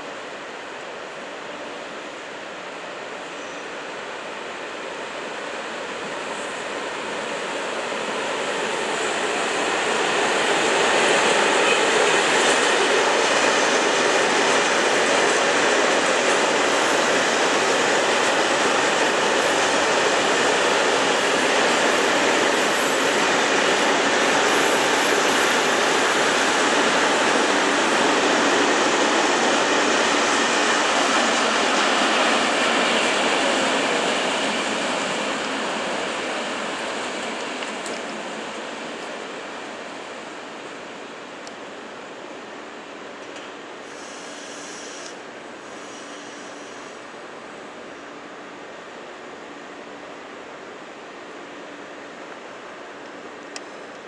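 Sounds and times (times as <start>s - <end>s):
train wheels rolling on rails: 2.8s - 54.0s
faint high wheel squeal: 3.2s - 3.8s, 43.8s - 47.0s.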